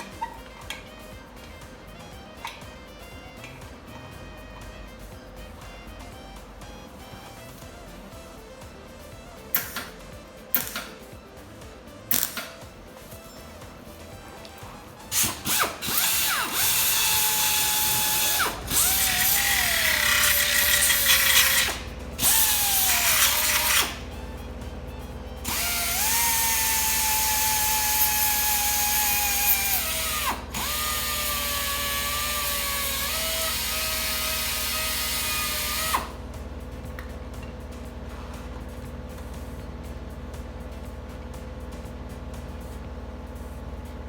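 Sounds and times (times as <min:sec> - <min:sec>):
power tool motor whining: 0:09.5 - 0:11.1, 0:12.1 - 0:12.6, 0:13.2 - 0:36.5.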